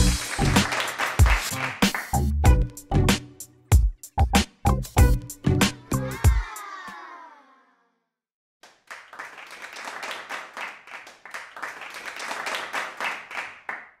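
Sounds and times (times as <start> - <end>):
clapping and applause: 0.0 - 2.3, 8.6 - 14.0
music track notes: 0.0 - 6.2.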